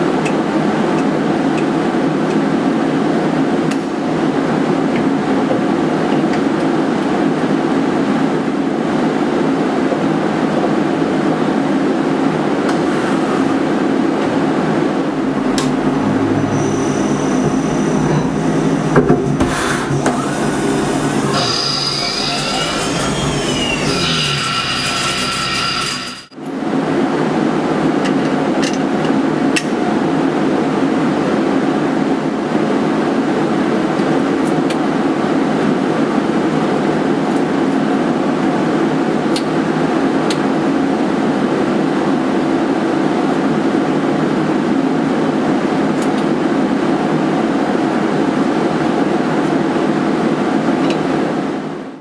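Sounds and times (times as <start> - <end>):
machine tool running: 12.7 - 26.4.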